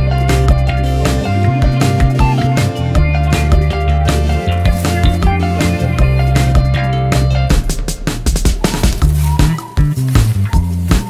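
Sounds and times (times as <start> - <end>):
background music with bass and drums: 0.0 - 11.0.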